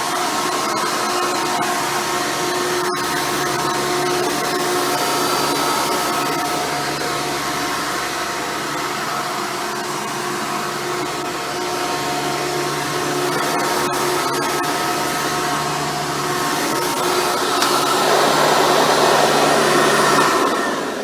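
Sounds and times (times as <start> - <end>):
vacuum cleaner motor whine: 14.7 - 21.0.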